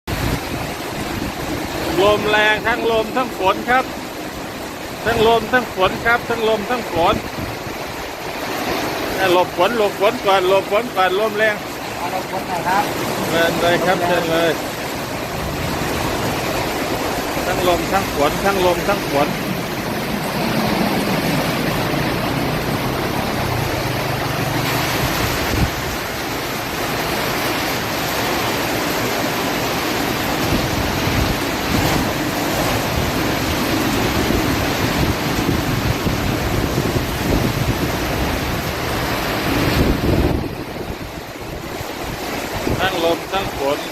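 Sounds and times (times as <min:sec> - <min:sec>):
heavy rain pouring: 0:00.0 - 0:43.9
wind buffeting microphone: 0:00.1 - 0:02.7, 0:06.9 - 0:09.1, 0:14.6 - 0:26.8, 0:27.8 - 0:43.9.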